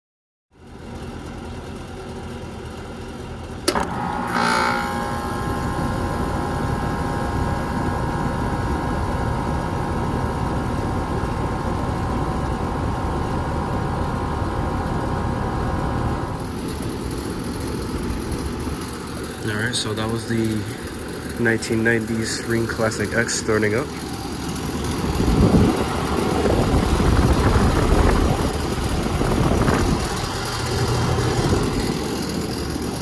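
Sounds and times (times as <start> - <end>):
air conditioner running: 0.6 - 33.0
air conditioner clunk: 3.6 - 8.2.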